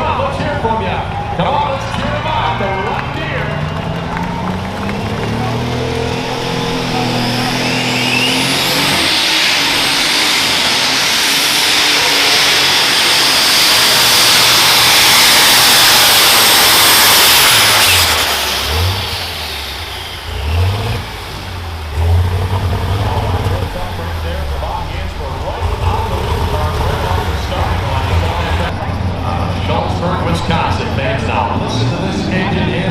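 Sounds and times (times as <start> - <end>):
high turbo whine: 0.0 - 32.9
tractor engine roaring: 0.0 - 32.9.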